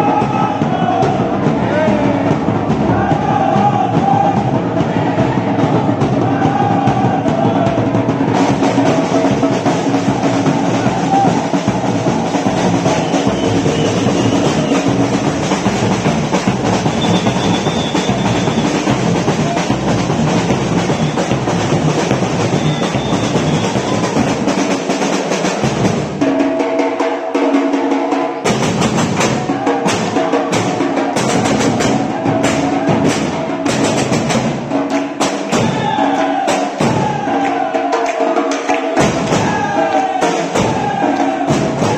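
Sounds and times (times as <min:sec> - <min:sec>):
batucada percussion music: 0:00.0 - 0:41.9
sharp drum hits: 0:39.0 - 0:41.9.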